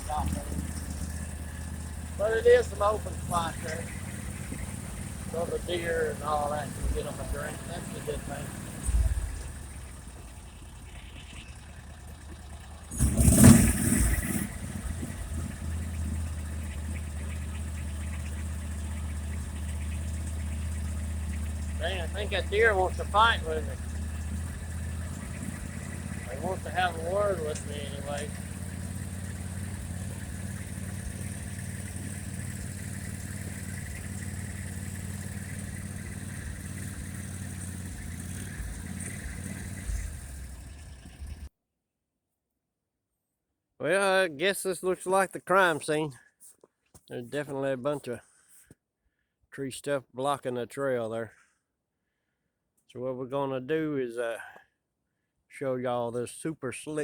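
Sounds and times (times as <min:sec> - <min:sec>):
vehicle engine running: 0:00.0 - 0:41.5.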